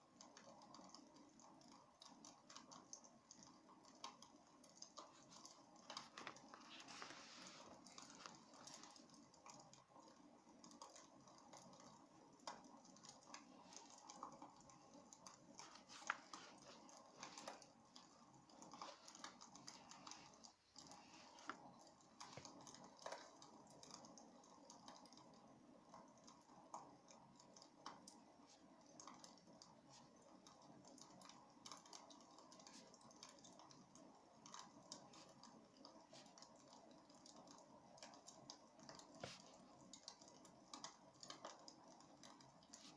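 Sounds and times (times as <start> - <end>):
soft steady hiss: 0.0 - 42.9.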